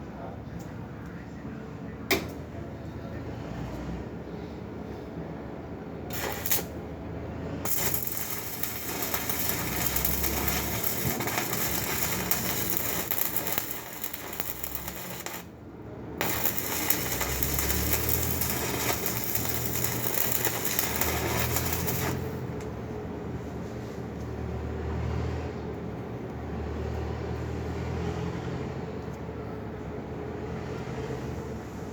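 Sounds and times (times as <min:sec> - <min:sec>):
arc welding crackling sizzle: 0:06.1 - 0:06.8, 0:07.6 - 0:15.5, 0:16.2 - 0:22.6.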